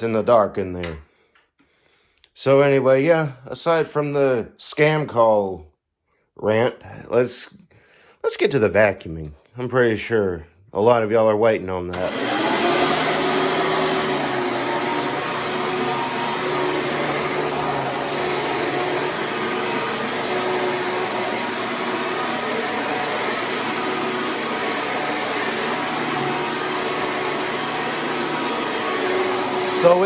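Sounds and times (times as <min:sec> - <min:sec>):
vacuum cleaner running: 0:11.9 - 0:30.0.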